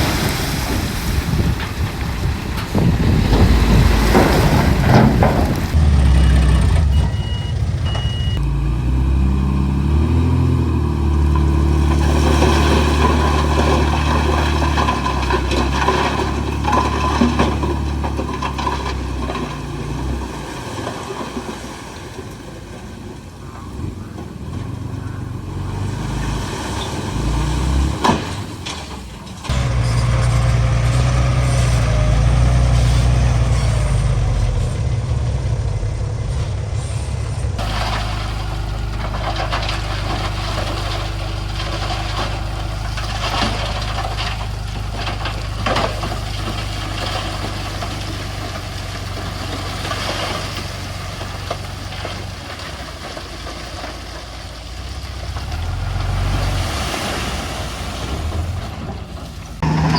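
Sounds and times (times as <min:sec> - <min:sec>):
heavy diesel engines revving: 0:00.0 - 0:59.9
short high beeps: 0:06.2 - 0:08.4.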